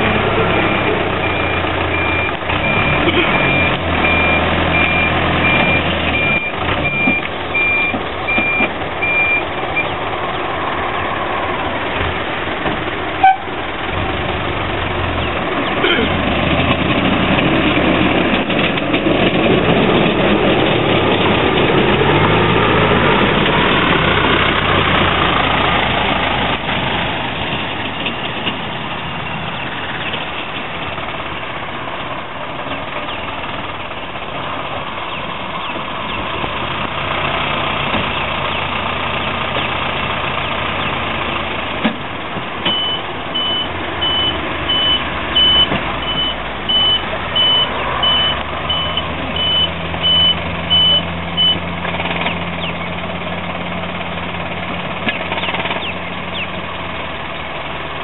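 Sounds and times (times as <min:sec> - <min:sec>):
diesel truck engine running: 0:00.0 - 0:58.0
reversing beeper: 0:00.3 - 0:09.9, 0:42.7 - 0:51.6.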